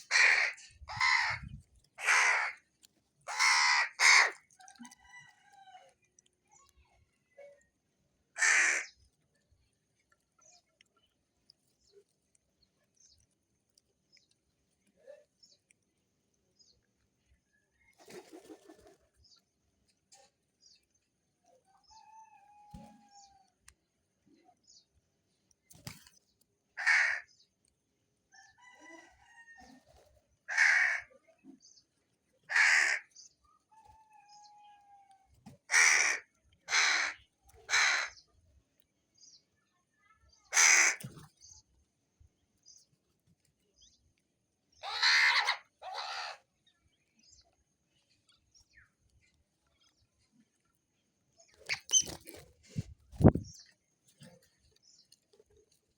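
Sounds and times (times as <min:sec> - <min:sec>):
crow cawing: 0:00.1 - 0:01.4, 0:02.0 - 0:02.6, 0:03.3 - 0:04.4, 0:08.4 - 0:08.9, 0:26.8 - 0:27.3, 0:30.5 - 0:31.1, 0:32.5 - 0:33.1, 0:35.7 - 0:38.2, 0:40.6 - 0:41.0.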